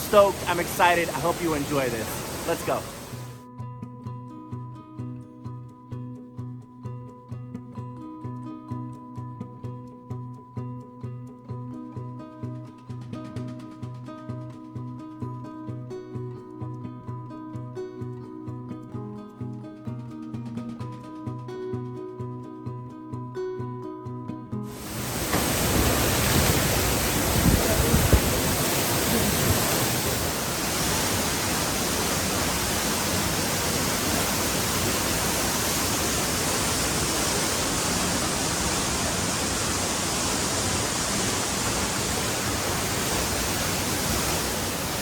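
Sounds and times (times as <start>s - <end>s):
waterfall roaring: 0.0s - 3.4s, 24.7s - 45.0s
low bumps: 24.8s - 35.2s.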